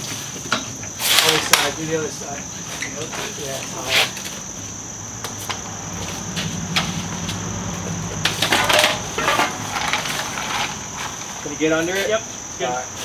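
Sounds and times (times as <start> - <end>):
insect chirring: 0.0 - 13.0
metal rattling clatter: 8.2 - 11.6.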